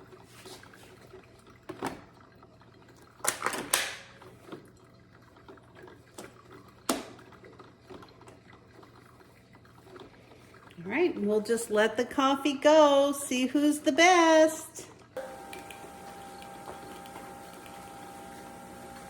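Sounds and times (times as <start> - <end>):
coffee machine clicks and clunks: 15.2 - 19.0.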